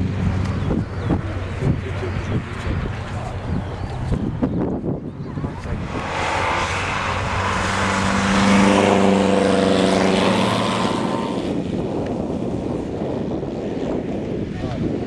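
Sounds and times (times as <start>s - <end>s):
racing car engine passing: 5.4s - 11.6s.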